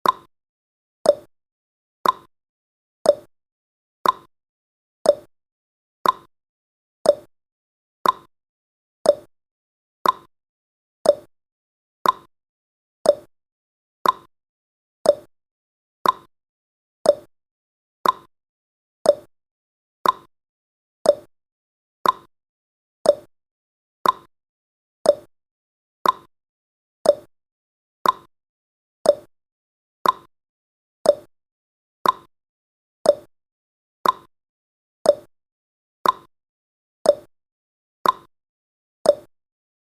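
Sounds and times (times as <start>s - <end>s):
clock-like tick-tock: 0.0s - 0.3s, 1.0s - 1.3s, 2.0s - 2.3s, 3.0s - 3.3s, 4.0s - 4.3s, 5.0s - 5.3s, 6.0s - 6.3s, 7.0s - 7.3s, 8.0s - 8.3s, 9.0s - 9.3s, 10.0s - 10.3s, 11.0s - 11.3s, 12.0s - 12.3s, 13.0s - 13.3s, 14.0s - 14.3s, 15.0s - 15.3s, 16.0s - 16.3s, 17.0s - 17.3s, 18.0s - 18.3s, 19.0s - 19.3s, 20.0s - 20.3s, 21.0s - 21.3s, 22.0s - 22.3s, 23.0s - 23.3s, 24.0s - 24.3s, 25.0s - 25.3s, 26.0s - 26.3s, 27.0s - 27.3s, 28.0s - 28.3s, 29.0s - 29.4s, 30.0s - 30.3s, 31.0s - 31.4s, 32.0s - 32.3s, 33.0s - 33.4s, 34.0s - 34.4s, 35.0s - 35.4s, 36.0s - 36.4s, 37.0s - 37.4s, 38.0s - 38.4s, 39.0s - 39.4s.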